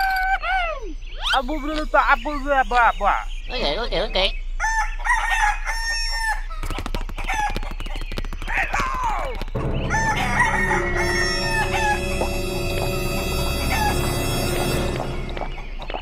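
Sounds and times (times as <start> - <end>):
chickens clucking: 3.5 - 16.0
rooster crowing: 4.6 - 6.6, 9.6 - 14.8
music with long held notes: 9.6 - 16.0.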